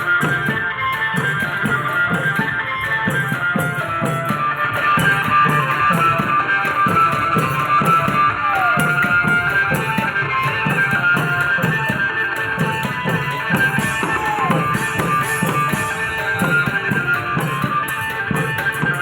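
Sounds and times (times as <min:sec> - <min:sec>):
drums beating quick rhythm: 0:00.0 - 0:19.0
cymbal strokes: 0:13.8 - 0:17.6.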